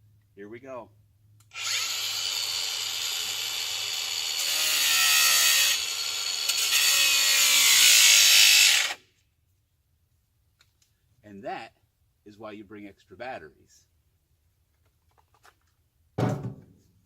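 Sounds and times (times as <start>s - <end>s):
angle grinder cutting steel: 1.5s - 9.0s.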